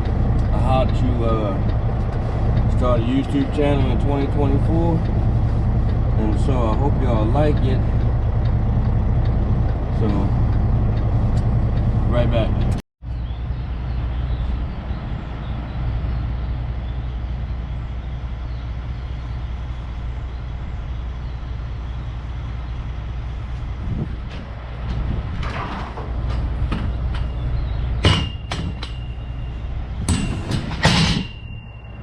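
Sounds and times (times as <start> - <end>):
diesel truck engine idling: 0.0 - 30.2
knocks and clatter: 24.0 - 29.3, 30.0 - 31.5.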